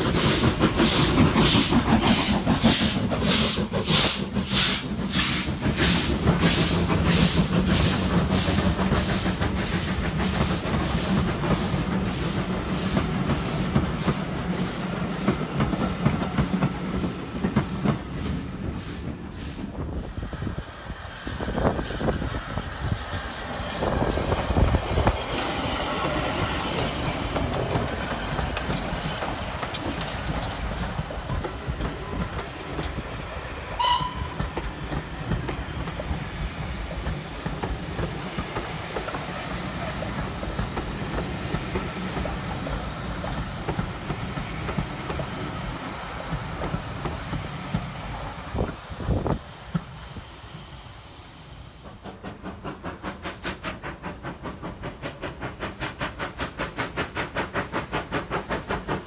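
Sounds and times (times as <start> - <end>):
steam train strikes and rumble: 0.0 - 59.0
coaches rolling over rail joints: 20.7 - 50.6.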